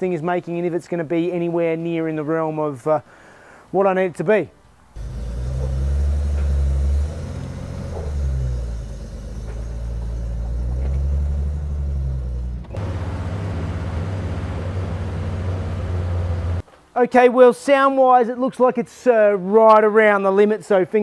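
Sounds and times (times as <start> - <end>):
car engine rumbling: 5.0 - 16.6.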